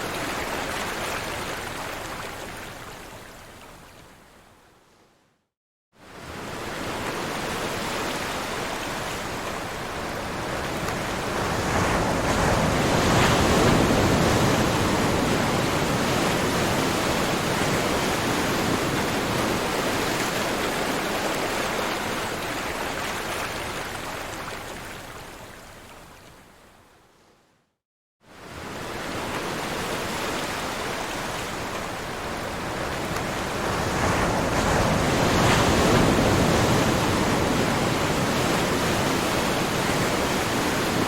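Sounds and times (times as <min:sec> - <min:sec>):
ocean waves washing: 0:06.1 - 0:25.2, 0:28.3 - 0:41.0.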